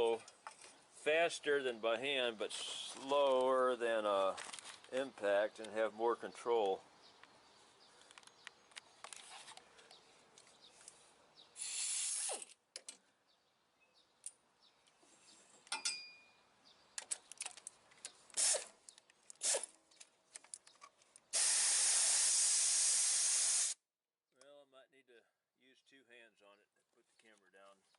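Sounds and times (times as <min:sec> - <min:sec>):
air ratchet hissing bursts: 0:11.6 - 0:12.5, 0:18.4 - 0:18.7, 0:21.3 - 0:23.8.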